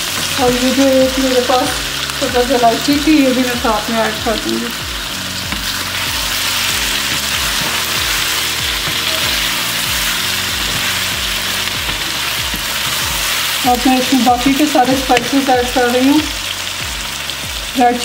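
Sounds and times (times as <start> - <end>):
chicken and onions sizzling in oil: 0.0 - 18.0
soft background music: 0.0 - 18.0
wooden spatula stirring: 5.4 - 15.0.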